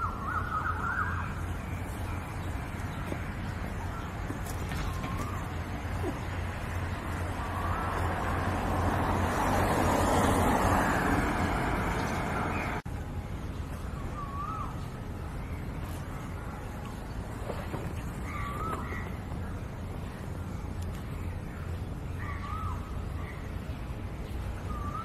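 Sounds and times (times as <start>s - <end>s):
wavering bird calls: 0.0s - 8.6s, 18.0s - 19.6s, 21.6s - 23.5s.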